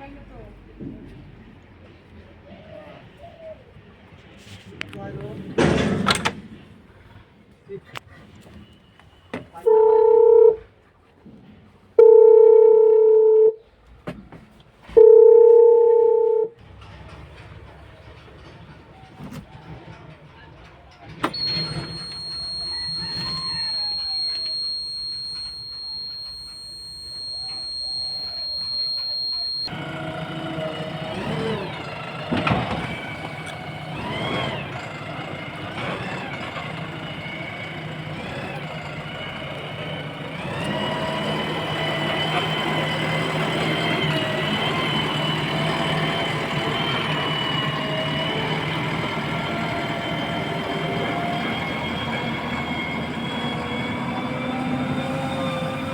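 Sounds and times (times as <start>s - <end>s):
heavy diesel engines revving: 21.1s - 55.9s.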